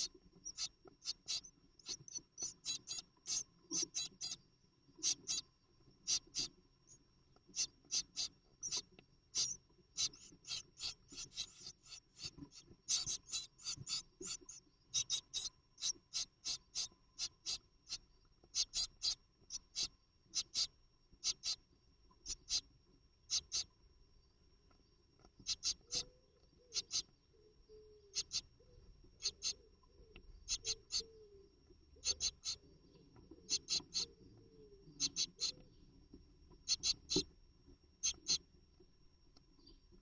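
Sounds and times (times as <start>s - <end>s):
chicks squeaking calls: 0.0s - 4.4s, 5.0s - 5.4s, 6.0s - 6.5s, 7.5s - 17.6s, 18.5s - 21.6s, 25.4s - 26.1s, 26.7s - 27.0s, 28.1s - 28.5s, 29.2s - 29.6s, 30.5s - 31.1s, 32.0s - 32.6s, 33.4s - 34.1s, 34.9s - 35.6s, 36.6s - 37.2s, 38.0s - 38.4s.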